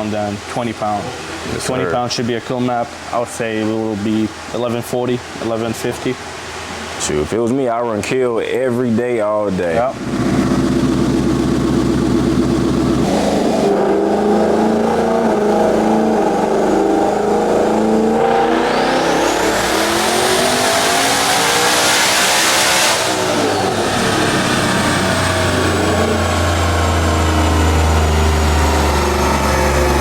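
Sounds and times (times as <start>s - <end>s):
car engine revving at full throttle: 9.9s - 30.0s.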